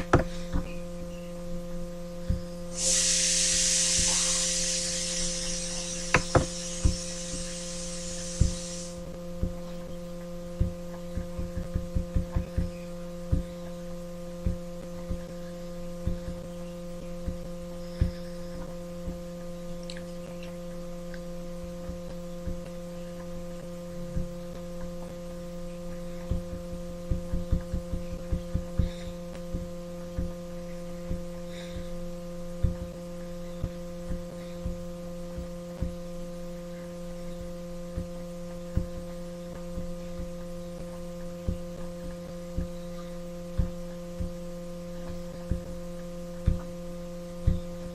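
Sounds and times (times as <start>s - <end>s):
electrical hum: 0.0s - 47.9s
hiss: 2.7s - 9.1s.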